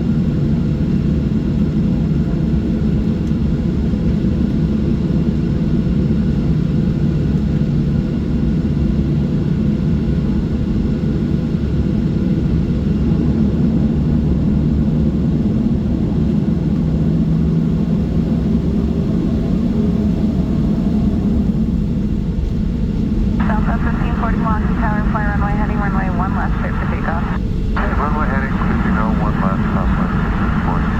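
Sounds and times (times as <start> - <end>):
airplane cabin roar: 21.4 - 30.9.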